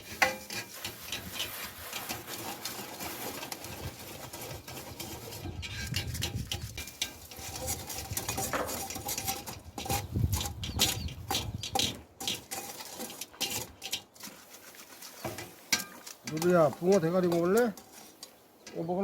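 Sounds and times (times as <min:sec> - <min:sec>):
pots and utensils clattering: 0:00.0 - 0:19.0.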